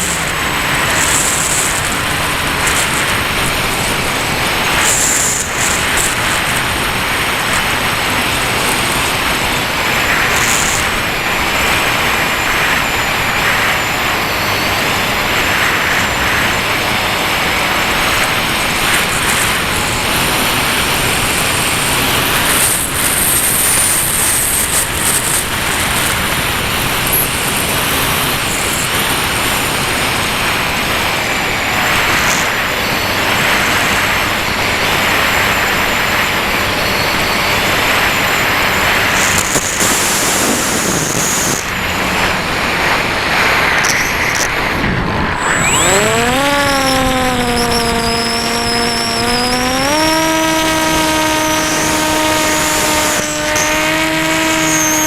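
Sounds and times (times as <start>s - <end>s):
electric motor whine: 0.0s - 55.0s
rushing airflow: 0.0s - 55.0s.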